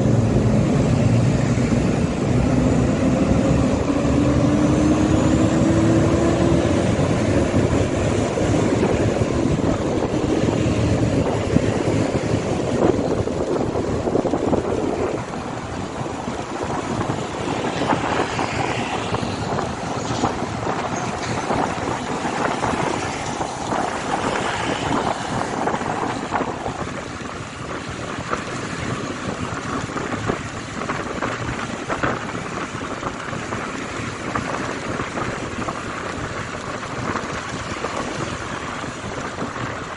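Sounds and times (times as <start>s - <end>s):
wind noise on microphone: 0.0s - 39.9s.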